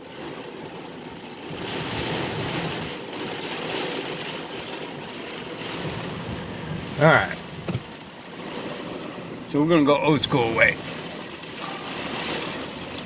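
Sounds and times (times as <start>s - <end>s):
heavy rain on car: 0.0s - 13.0s.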